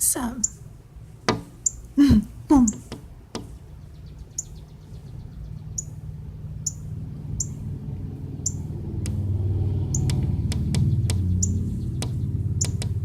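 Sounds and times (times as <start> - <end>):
low rumble: 3.7 - 13.0
songbird chip calls: 3.8 - 6.0, 6.6 - 7.6, 8.4 - 8.7, 9.9 - 10.2, 10.8 - 12.9
sharp tap: 10.0 - 11.3, 12.0 - 13.0.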